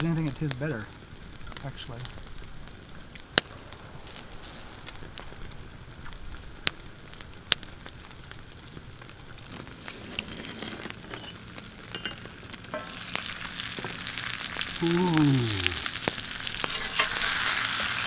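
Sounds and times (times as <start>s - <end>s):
campfire crackling: 0.0s - 18.0s
fish sizzling: 0.0s - 18.0s
sharp pops: 1.3s - 8.0s.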